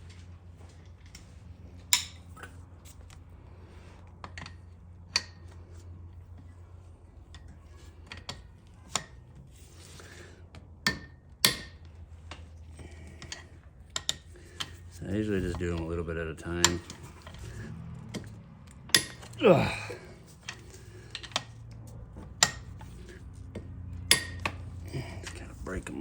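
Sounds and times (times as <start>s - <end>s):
metal hand tools clanking: 12.9s - 21.6s, 22.2s - 26.0s.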